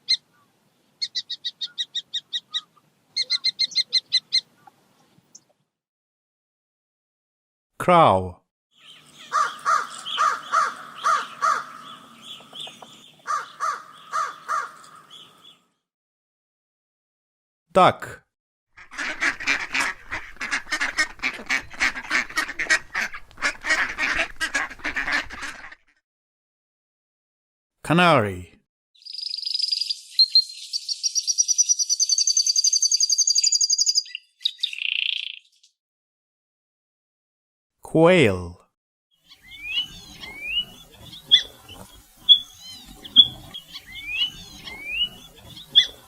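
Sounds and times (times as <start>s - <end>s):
canary singing trill: 1.0s - 4.6s, 8.8s - 15.6s, 29.0s - 35.6s, 39.3s - 46.0s
crow cawing: 9.2s - 12.2s, 13.2s - 15.6s
short bird chirps: 29.0s - 35.8s, 39.3s - 46.0s.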